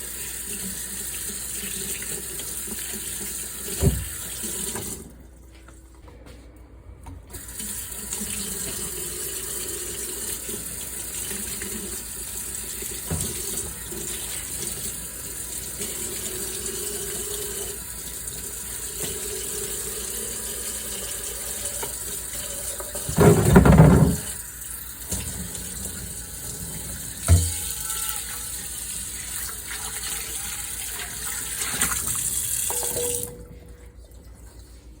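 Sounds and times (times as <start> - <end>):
dishes being washed: 0.0 - 5.1, 8.0 - 35.0
tap running into sink: 3.7 - 5.0, 13.0 - 13.8, 22.7 - 24.4, 26.8 - 27.7.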